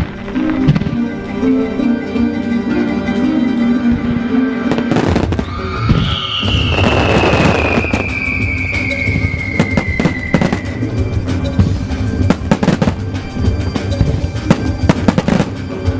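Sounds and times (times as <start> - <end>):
fireworks crackling and popping: 0.0 - 1.1, 4.7 - 15.9
low rumble of fireworks: 0.0 - 1.3, 3.8 - 15.9
show music: 0.0 - 15.9
descending whistle tone: 5.4 - 11.0.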